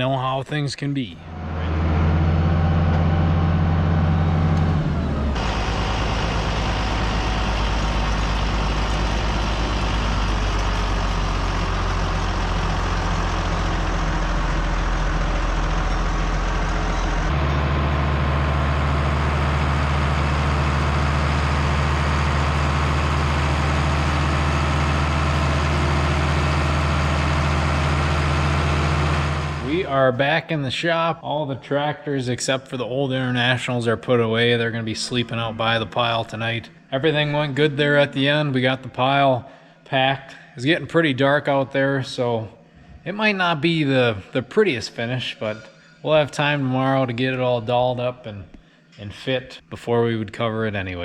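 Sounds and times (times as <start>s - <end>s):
tractor engine running: 1.2s - 29.9s.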